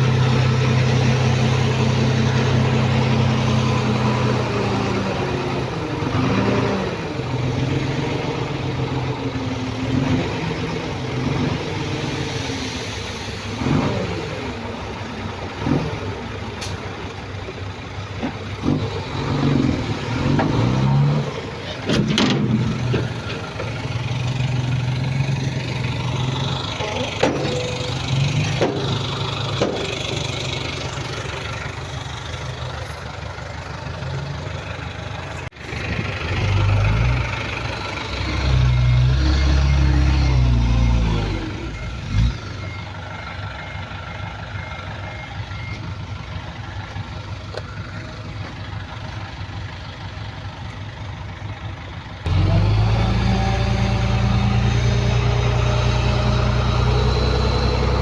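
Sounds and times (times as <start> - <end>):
engine revving up: 0.0 - 14.6, 18.6 - 21.5, 35.7 - 42.7, 52.2 - 58.0
heavy diesel engines running: 0.0 - 58.0
loud steady engine: 0.0 - 58.0.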